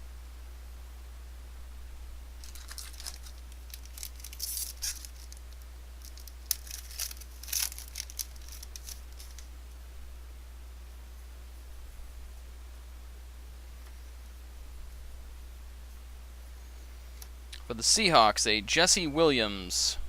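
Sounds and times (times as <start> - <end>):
foil wrapper tearing and crinkling: 2.4 - 9.5.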